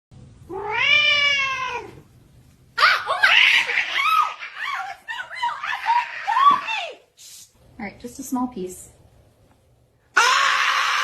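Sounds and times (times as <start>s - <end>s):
cat meowing and yowling: 0.5s - 2.0s.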